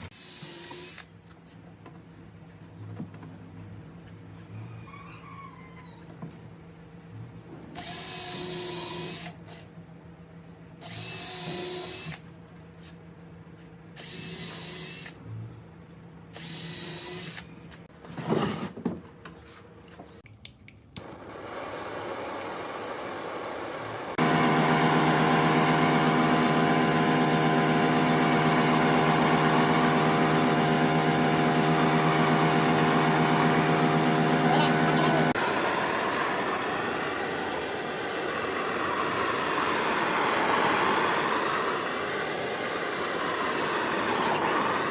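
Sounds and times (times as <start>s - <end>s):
electric power tool motor: 0.0s - 1.1s, 7.8s - 9.4s, 10.8s - 12.2s, 14.0s - 15.2s, 16.4s - 17.5s, 21.0s - 44.9s.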